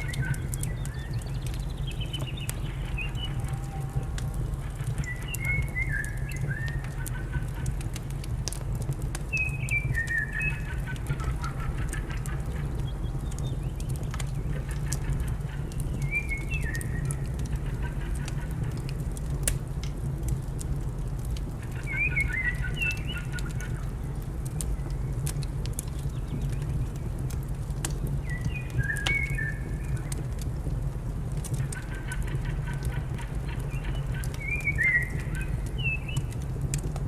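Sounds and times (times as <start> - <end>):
fire crackling and popping: 0.0 - 37.0
songbird warbling: 21.7 - 23.8, 28.2 - 30.1, 31.7 - 36.3.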